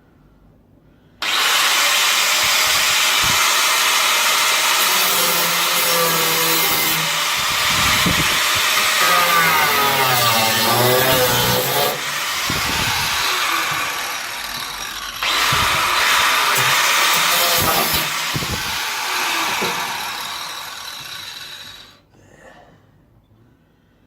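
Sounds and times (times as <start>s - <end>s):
angle grinder grinding metal: 1.2s - 22.0s.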